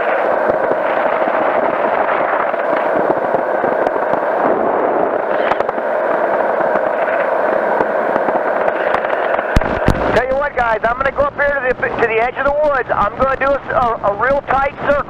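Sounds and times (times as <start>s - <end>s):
engine and wind through headset: 0.0s - 15.0s.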